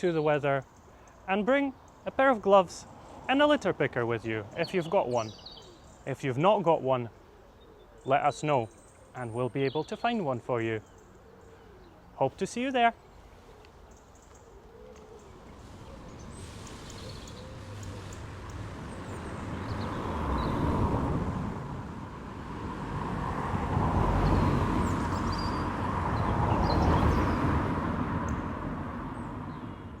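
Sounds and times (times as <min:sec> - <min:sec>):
small birds chirping faintly: 0:00.0 - 0:21.1
vehicles passing: 0:00.0 - 0:30.0.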